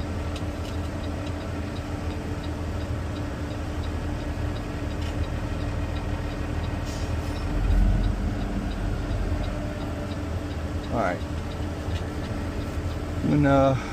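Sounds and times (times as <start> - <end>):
fast regular ticking: 1.1 - 13.2
deep rumble: 5.2 - 13.2.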